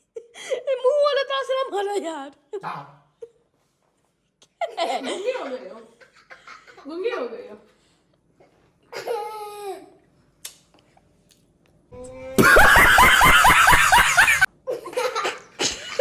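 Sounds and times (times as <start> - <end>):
person laughing loudly: 12.4 - 14.5.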